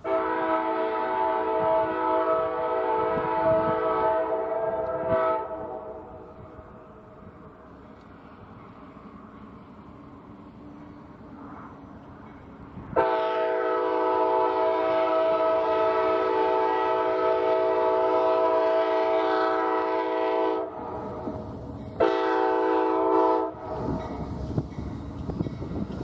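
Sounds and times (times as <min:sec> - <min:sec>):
train air horn blasts: 0:00.0 - 0:06.1, 0:13.0 - 0:20.8, 0:22.0 - 0:26.0
train rumble: 0:00.0 - 0:26.0.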